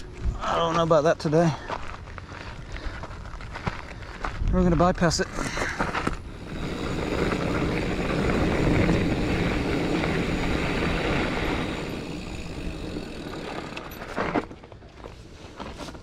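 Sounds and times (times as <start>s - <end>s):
bike tyres on dirt trail: 0.0s - 16.0s
rushing wind: 3.9s - 14.4s.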